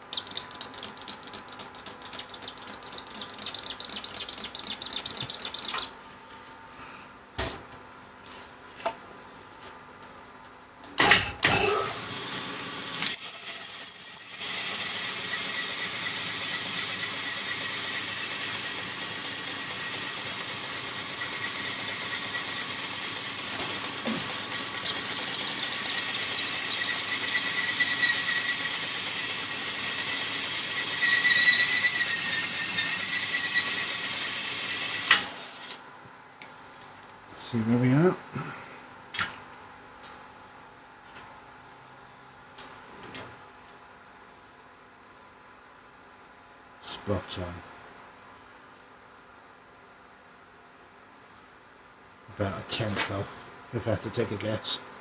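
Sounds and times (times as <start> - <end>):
high-pitched squeal: 13.0 - 16.4, 24.0 - 34.9.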